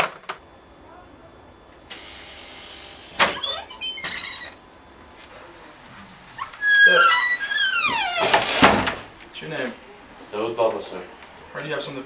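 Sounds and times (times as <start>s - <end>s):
steady hiss: 0.3s - 12.0s
door squeaking: 1.9s - 4.6s, 6.3s - 9.1s.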